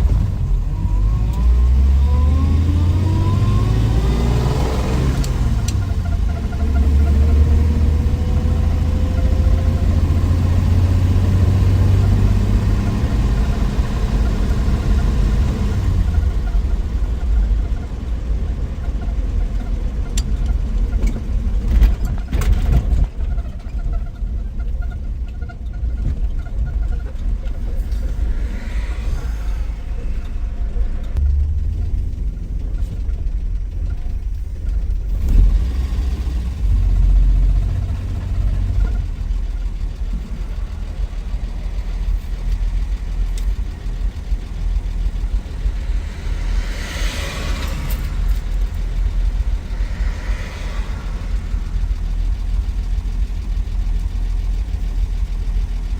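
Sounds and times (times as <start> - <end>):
car engine accelerating: 0.0 - 24.0, 25.9 - 55.9.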